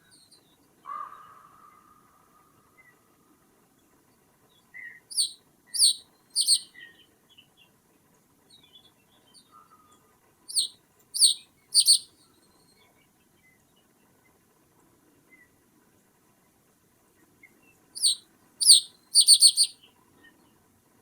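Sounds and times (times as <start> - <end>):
soft bird chirps: 4.8 - 7.5, 8.6 - 13.8, 17.4 - 20.5
bird calling sharply: 5.1 - 6.7, 10.5 - 12.1, 18.0 - 19.7.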